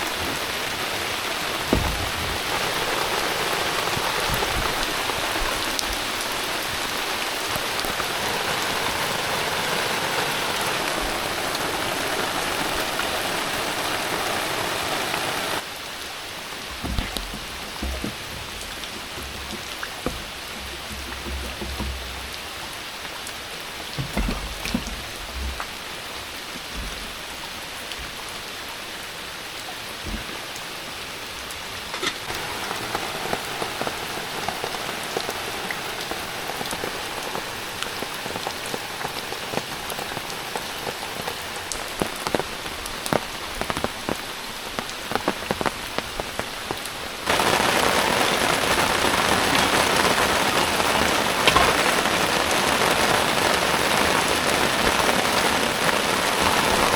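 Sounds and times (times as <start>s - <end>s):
heavy rain: 0.0s - 56.9s
raindrops ticking sharply: 0.0s - 56.9s
low thumps: 1.5s - 6.9s, 16.6s - 23.0s, 23.9s - 28.4s.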